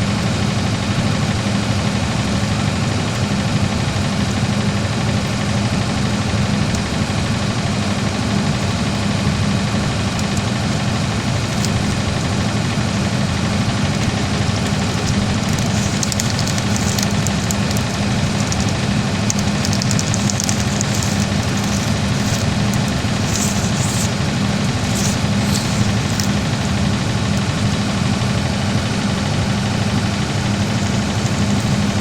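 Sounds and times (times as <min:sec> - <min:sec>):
engine humming steadily: 0:00.0 - 0:32.0
light crackling ticks: 0:14.6 - 0:26.8.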